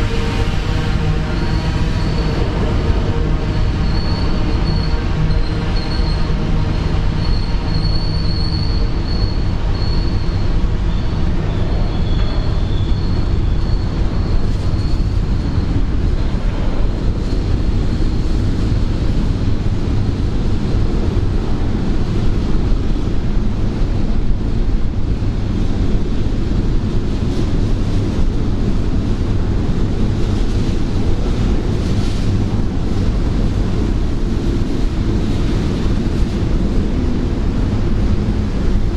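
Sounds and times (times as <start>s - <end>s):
train wheel squeal: 0.0s - 20.2s
freight train rumbling: 0.0s - 38.9s.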